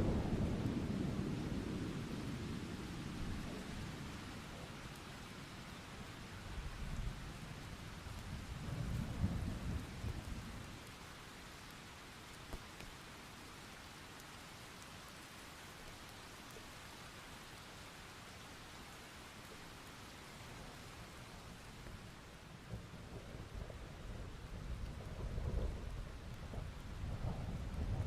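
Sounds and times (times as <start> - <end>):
steady rain: 0.0 - 28.0
rolling thunder: 22.6 - 28.0.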